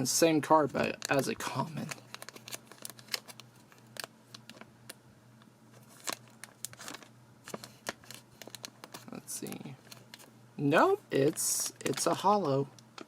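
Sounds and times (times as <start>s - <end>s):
faint steady hum: 0.0s - 13.0s
plastic wrapping crinkling: 0.8s - 5.0s, 5.8s - 10.3s, 11.3s - 13.0s.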